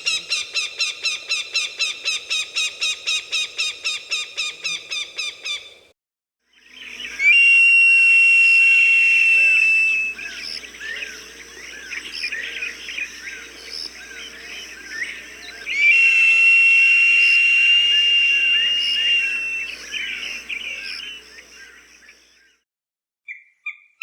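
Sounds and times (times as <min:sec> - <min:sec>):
small birds chirping: 0:10.0 - 0:16.1
recorded falcon cries: 0:15.5 - 0:21.0.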